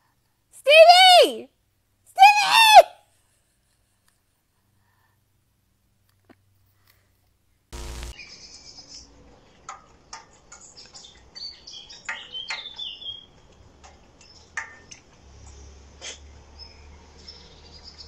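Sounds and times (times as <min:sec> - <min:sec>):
small birds chirping: 0:07.8 - 0:18.0.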